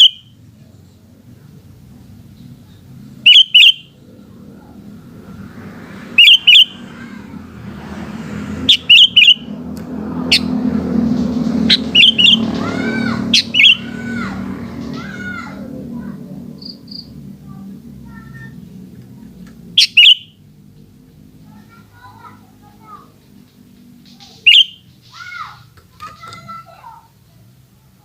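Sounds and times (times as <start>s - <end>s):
bird chirping sharply: 0.0s - 0.3s, 3.2s - 4.0s, 6.2s - 7.1s, 8.6s - 9.6s, 11.6s - 15.2s, 19.8s - 20.4s, 24.1s - 25.6s
soft whistled bird notes: 24.2s - 24.9s.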